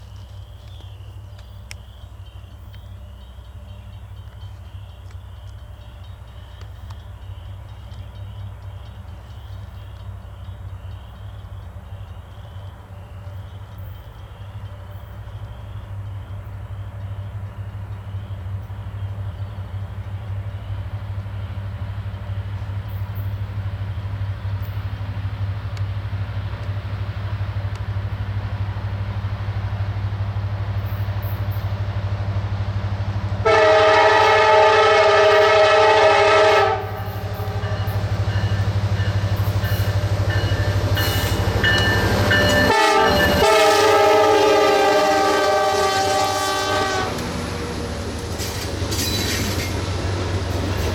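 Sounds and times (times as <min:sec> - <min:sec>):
diesel locomotive rumble: 0:00.0 - 0:50.9
multi-note air horn blasts: 0:33.4 - 0:38.0, 0:42.6 - 0:47.2.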